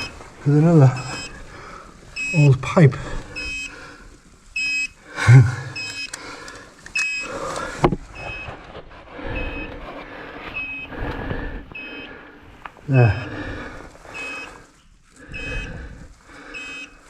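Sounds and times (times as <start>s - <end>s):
gas detector alarm beeps: 0.0s - 0.2s, 0.8s - 1.4s, 2.2s - 3.8s, 4.6s - 6.2s, 6.9s - 7.4s, 8.2s - 8.6s, 9.3s - 9.7s, 10.6s - 11.0s, 11.7s - 12.2s, 12.9s - 13.4s, 14.1s - 14.6s, 15.3s - 15.8s, 16.5s - 17.0s
heavy breathing: 0.0s - 4.3s, 5.0s - 17.0s.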